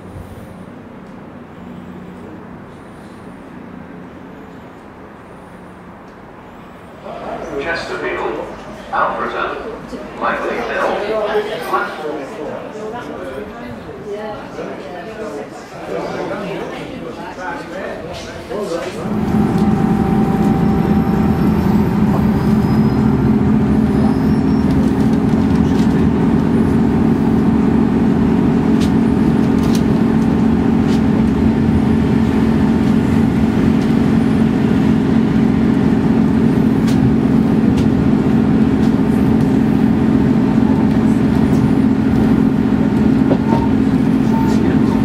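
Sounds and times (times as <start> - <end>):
train engine hum: 0.0 - 45.0
wheels rumbling on rails: 18.8 - 45.0.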